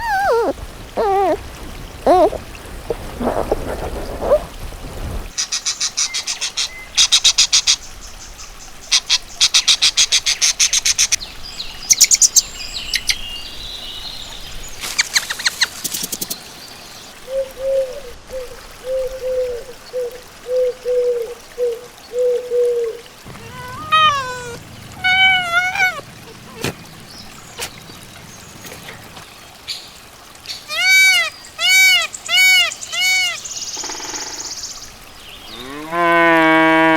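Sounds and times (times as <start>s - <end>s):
falling pitched cry: 0.0s - 1.4s, 23.3s - 26.8s, 30.7s - 33.4s
low clucking notes: 23.2s - 29.2s.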